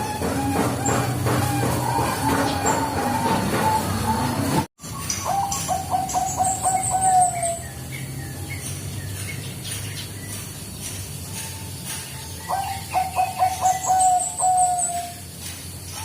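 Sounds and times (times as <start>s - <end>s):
small birds chirping: 4.8s - 16.0s
dove cooing: 5.2s - 7.6s, 12.5s - 15.1s.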